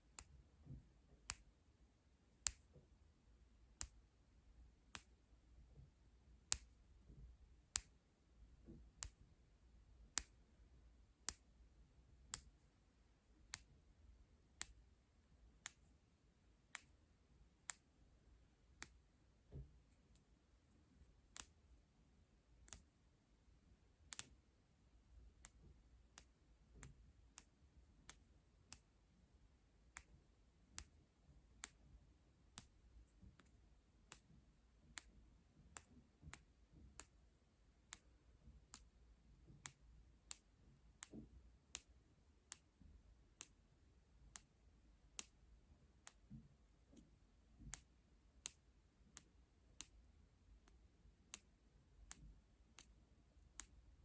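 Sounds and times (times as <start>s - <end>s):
crisp asmr clicks: 2.4s - 2.8s, 4.9s - 5.2s, 7.7s - 8.0s, 11.2s - 11.5s, 44.3s - 45.4s.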